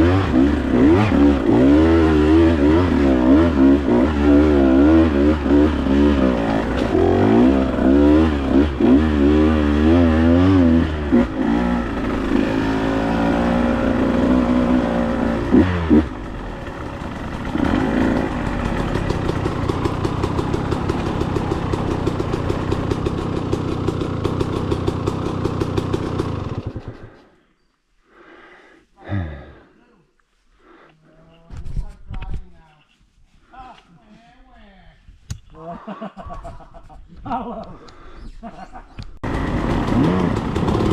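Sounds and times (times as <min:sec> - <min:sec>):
dirt bike engine revving: 0:00.0 - 0:27.2, 0:39.2 - 0:40.9.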